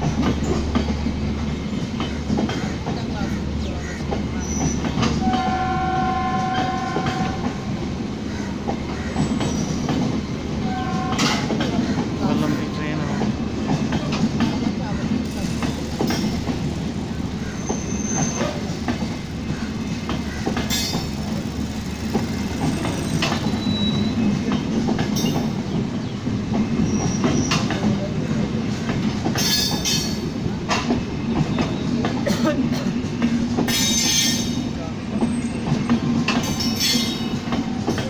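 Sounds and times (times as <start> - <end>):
train rumbling past: 0.0 - 38.0
wheel clacks over rail joints: 13.2 - 25.8, 28.7 - 38.0
high wheel squeals: 15.3 - 24.5.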